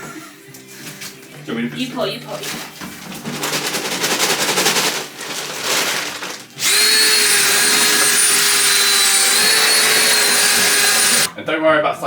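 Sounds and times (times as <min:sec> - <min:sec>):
powder pouring into bucket: 0:03.2 - 0:11.1
electric drill mixing: 0:06.6 - 0:11.3.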